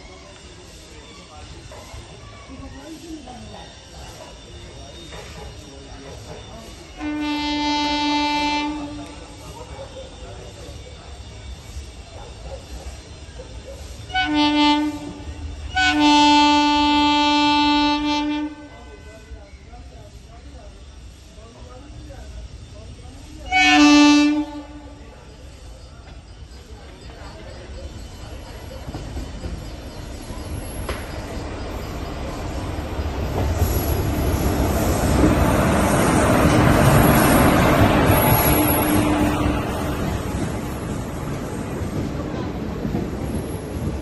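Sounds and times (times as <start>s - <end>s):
train wheels rumbling: 0.0s - 44.0s
locomotive horn blasts: 7.0s - 9.2s, 14.1s - 18.9s, 23.5s - 25.0s.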